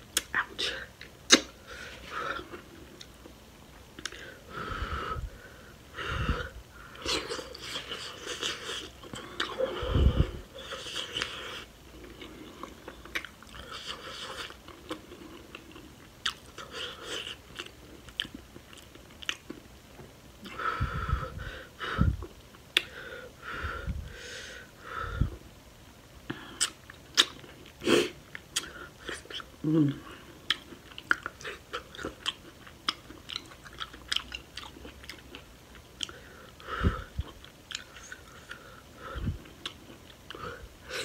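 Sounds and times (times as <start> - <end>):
wet crunchy chewing: 30.5 - 36.2.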